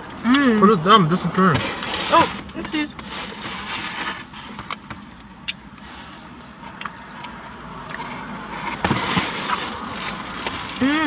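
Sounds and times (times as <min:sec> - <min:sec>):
people chewing: 0:05.4 - 0:11.0.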